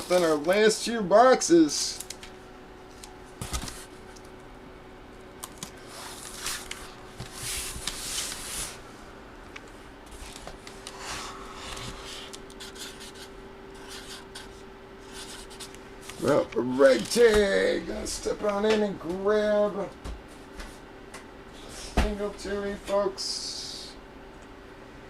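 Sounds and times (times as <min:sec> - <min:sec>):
faint steady hum: 0:00.0 - 0:25.0
packaging rustling and scraping: 0:05.6 - 0:08.8.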